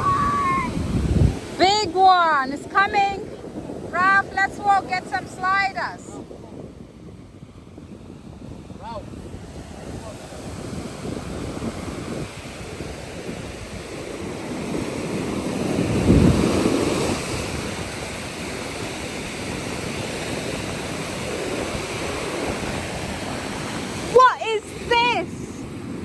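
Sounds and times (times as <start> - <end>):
ocean surf washing on beach: 0.0 - 26.0
wind buffeting microphone: 0.0 - 26.0.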